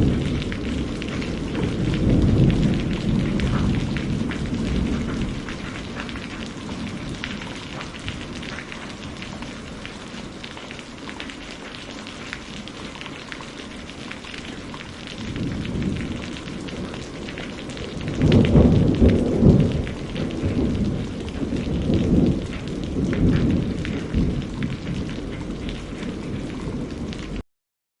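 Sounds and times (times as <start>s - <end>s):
thunder rumbling: 0.0s - 10.6s, 13.6s - 27.4s
steady rain falling: 0.0s - 27.4s.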